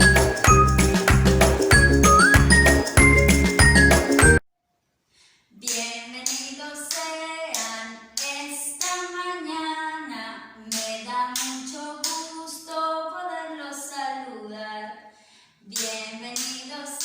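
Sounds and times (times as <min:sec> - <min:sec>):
hand claps: 0:00.0 - 0:04.4
musical jingle: 0:00.0 - 0:04.4.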